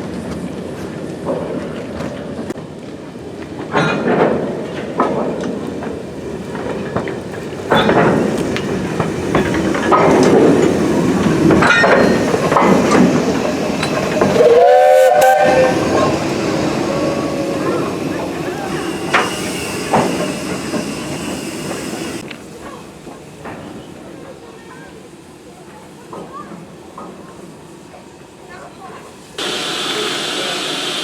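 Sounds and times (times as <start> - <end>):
steam locomotive running: 0.0 - 24.3, 25.0 - 31.0
steam whistle blast: 14.3 - 18.0.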